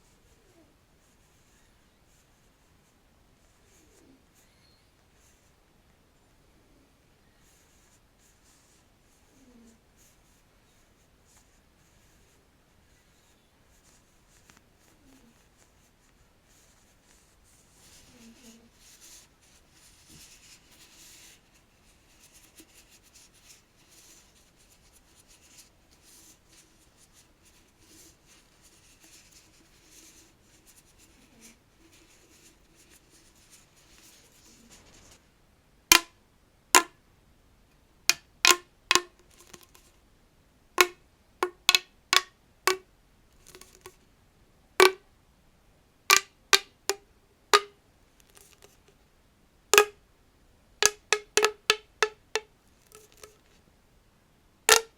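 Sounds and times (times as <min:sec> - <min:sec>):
scratching on plastic tube: 0:13.1 - 0:35.2, 0:38.1 - 0:40.0, 0:40.8 - 0:42.8, 0:43.4 - 0:44.0, 0:44.8 - 0:45.0, 0:46.1 - 0:49.0, 0:49.7 - 0:50.0, 0:50.8 - 0:53.6, 0:54.7 - 0:54.9
plastic tube popping: 0:35.9 - 0:37.0, 0:38.1 - 0:39.9, 0:40.8 - 0:44.0, 0:44.8 - 0:45.1, 0:46.1 - 0:49.0, 0:49.7 - 0:50.0, 0:50.8 - 0:53.6, 0:54.7 - 0:54.9.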